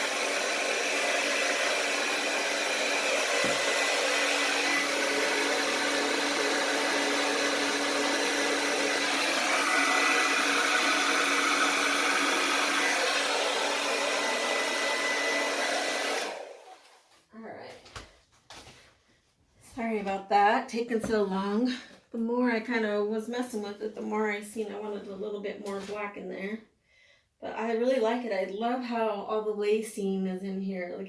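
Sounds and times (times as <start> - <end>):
blow dryer running: 0.0 - 16.8.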